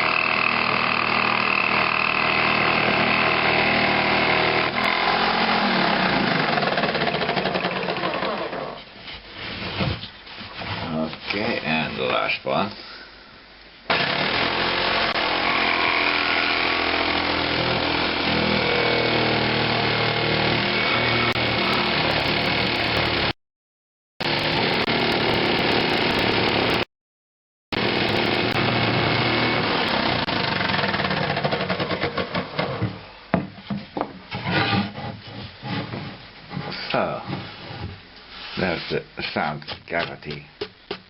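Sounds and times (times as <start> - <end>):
electric saw cutting wood: 0.0 - 8.7, 13.9 - 23.4, 24.2 - 26.9, 27.8 - 31.4
knocks and handling of wood: 31.4 - 38.0.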